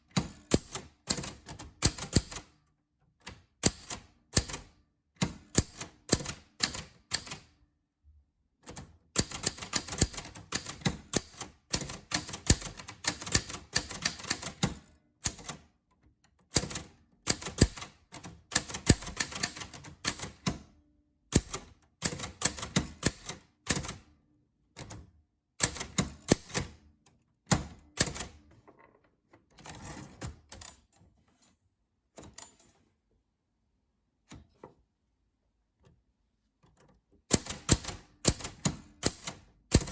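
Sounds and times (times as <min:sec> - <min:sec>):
typewriter keys clicking: 0:00.1 - 0:02.5, 0:03.2 - 0:07.5, 0:08.6 - 0:15.6, 0:16.5 - 0:20.6, 0:21.3 - 0:24.0, 0:27.5 - 0:28.5, 0:37.3 - 0:39.9.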